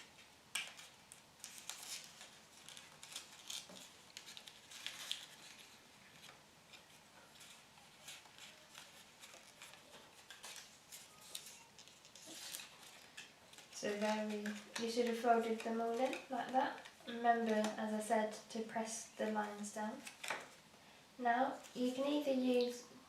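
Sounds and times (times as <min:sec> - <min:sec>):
card crackling as folded: 0:00.0 - 0:20.6.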